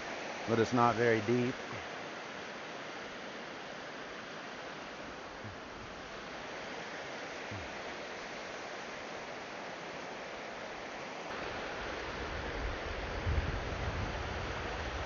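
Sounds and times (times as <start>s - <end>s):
river water rushing over rocks: 0.0s - 15.0s.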